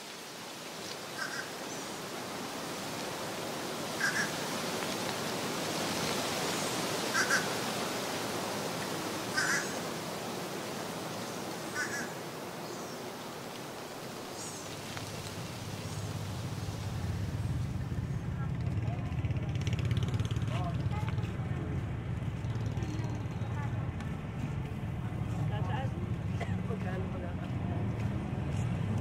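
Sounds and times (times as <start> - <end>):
steady rushing noise: 0.0 - 22.8.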